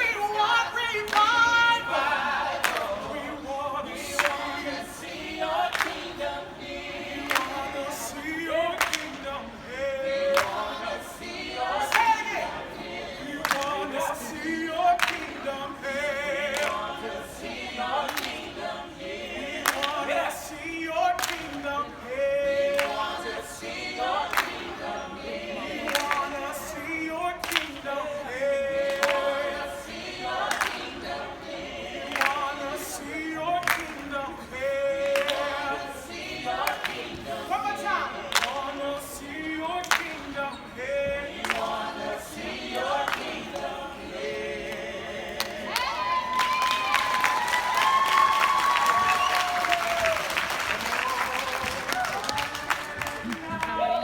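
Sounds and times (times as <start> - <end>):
group singing a cappella: 0.0 - 54.0
handclaps: 1.0 - 1.4, 2.6 - 3.0, 4.1 - 4.6, 5.7 - 6.1, 7.2 - 7.7, 8.7 - 9.2, 10.3 - 10.7, 13.4 - 13.8, 15.0 - 15.4, 16.5 - 16.9, 18.1 - 18.5, 19.6 - 20.0, 21.1 - 21.8, 22.7 - 23.1, 24.2 - 24.7, 25.8 - 26.3, 27.4 - 27.8, 28.8 - 29.4, 30.4 - 30.9, 32.1 - 32.5, 33.6 - 34.1, 38.3 - 38.7, 39.8 - 40.2, 41.4 - 41.8, 45.4 - 53.9.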